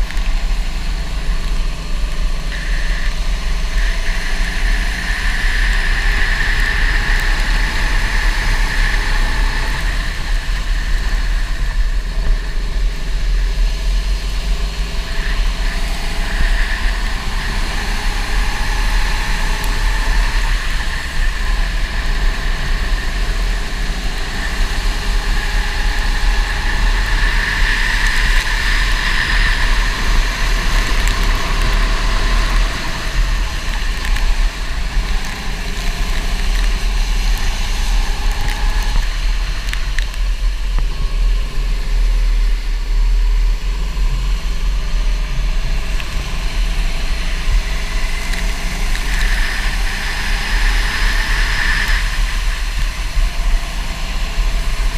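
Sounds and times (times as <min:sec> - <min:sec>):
go-kart engine revving: 0:00.0 - 0:54.9.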